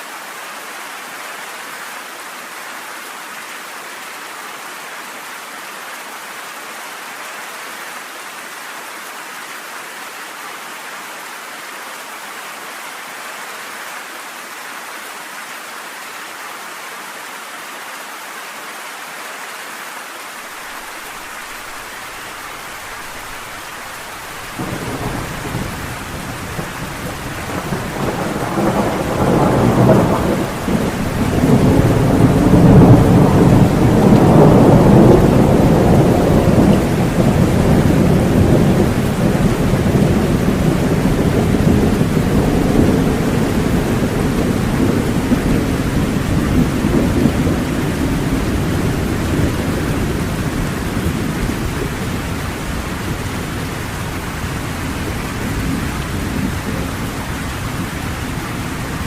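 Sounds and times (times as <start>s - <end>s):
rain hissing: 20.2s - 59.0s
thunder rumbling: 21.2s - 59.0s.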